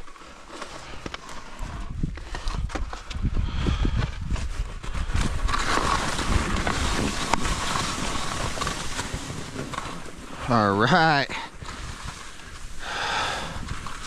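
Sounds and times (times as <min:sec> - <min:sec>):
wind on microphone: 0:01.6 - 0:09.7
skis sliding through wet snow: 0:04.4 - 0:14.0.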